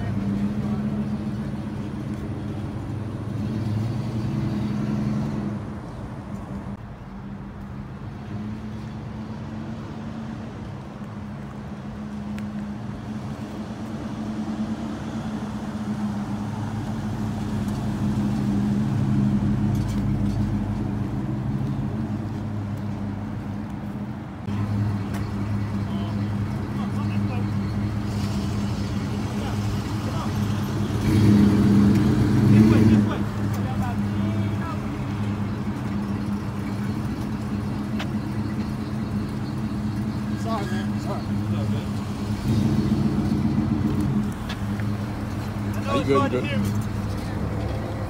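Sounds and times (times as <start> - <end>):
car engine rumbling by: 12.1 - 48.0.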